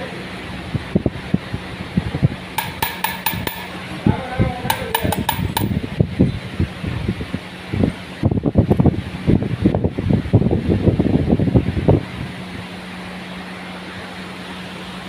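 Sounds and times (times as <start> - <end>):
steady low hum: 0.4 - 7.8
sharp ringing metal clicks: 2.6 - 3.9, 4.7 - 5.8.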